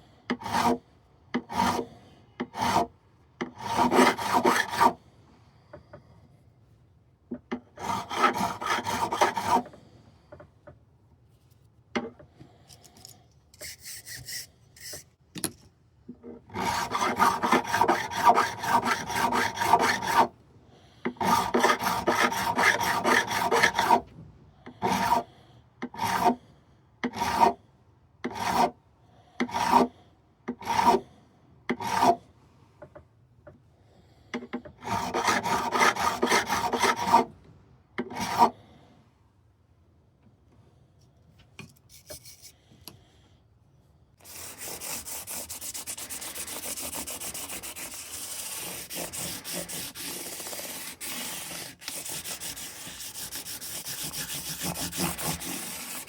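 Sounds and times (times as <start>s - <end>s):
file rasping on guitar frets: 44.3s - 56.0s.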